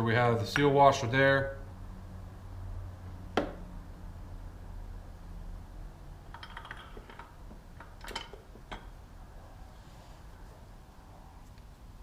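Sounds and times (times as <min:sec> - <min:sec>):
low steady hum: 0:00.0 - 0:12.0
small parts clicking and tapping: 0:06.3 - 0:09.0.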